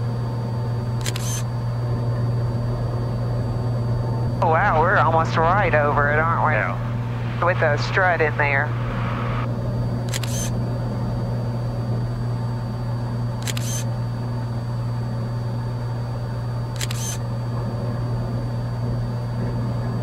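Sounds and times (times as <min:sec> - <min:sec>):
aircraft engine drone: 0:00.0 - 0:20.0
camera shutter clicks: 0:01.0 - 0:01.5, 0:10.1 - 0:10.5, 0:13.4 - 0:13.9, 0:16.8 - 0:17.2.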